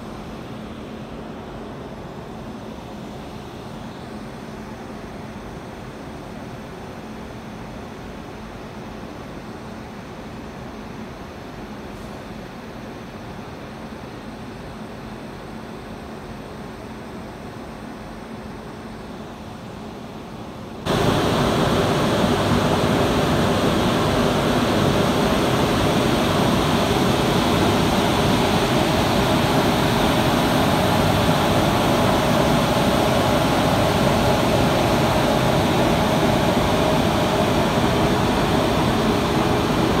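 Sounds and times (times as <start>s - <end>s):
train passing with rushing rumble: 20.9s - 40.0s.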